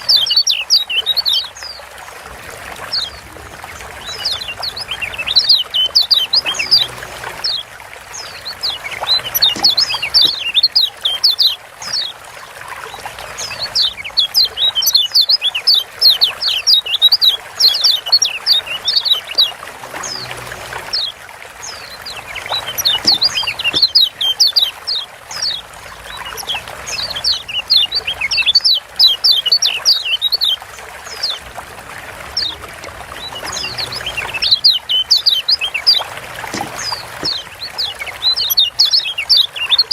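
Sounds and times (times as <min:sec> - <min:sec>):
trickling water hiss: 0:00.0 - 0:39.9
bird chirping rapidly: 0:04.0 - 0:12.1, 0:13.4 - 0:20.3, 0:21.7 - 0:30.6, 0:33.2 - 0:39.9.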